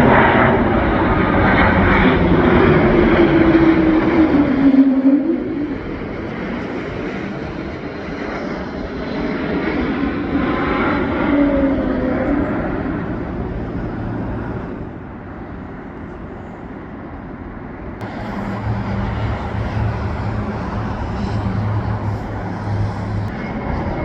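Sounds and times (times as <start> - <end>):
airliner engine rumble overhead: 0.0 - 24.0
low hum: 11.8 - 17.0, 18.0 - 24.0.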